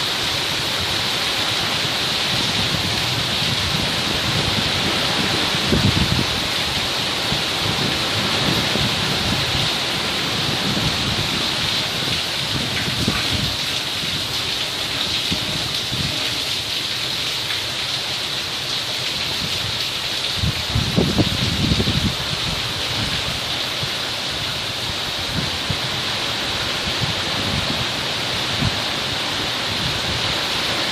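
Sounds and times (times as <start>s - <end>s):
heavy rain hissing: 0.0s - 30.9s.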